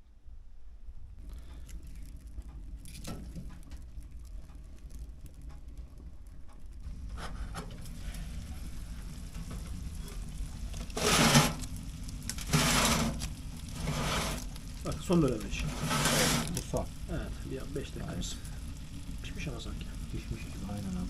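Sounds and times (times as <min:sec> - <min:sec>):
low steady rumble: 0:00.0 - 0:21.0
food sizzling: 0:01.2 - 0:21.0
small clicks: 0:01.3 - 0:06.9.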